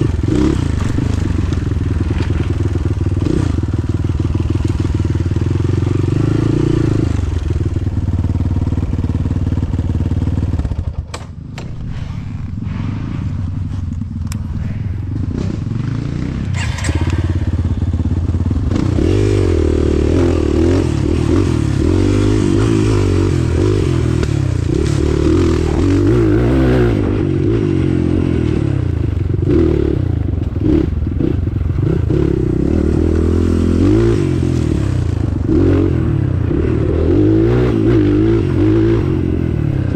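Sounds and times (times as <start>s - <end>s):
vehicle engine under load: 0.0s - 39.9s.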